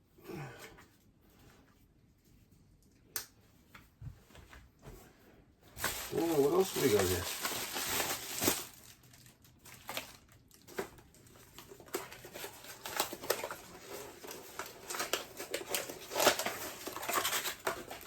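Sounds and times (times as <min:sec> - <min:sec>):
packaging crinkling and rustling: 0:05.7 - 0:18.0.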